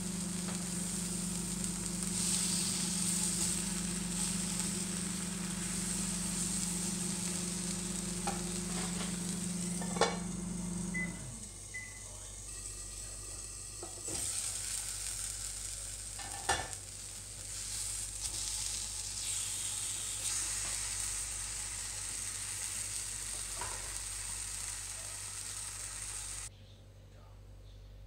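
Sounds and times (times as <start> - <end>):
tomato slices sizzling in oil: 0.0 - 26.5.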